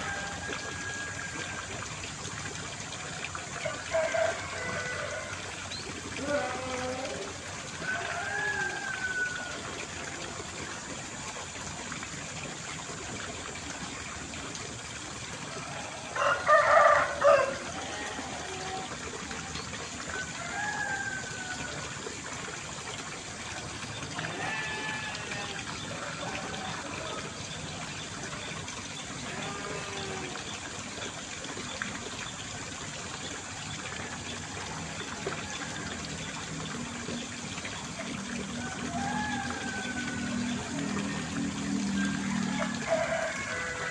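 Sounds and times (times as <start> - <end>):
running water rushing: 0.0 - 43.9
rooster crowing: 3.6 - 5.4, 7.8 - 9.6, 16.1 - 17.8, 20.4 - 21.8, 38.6 - 40.9, 42.0 - 43.9.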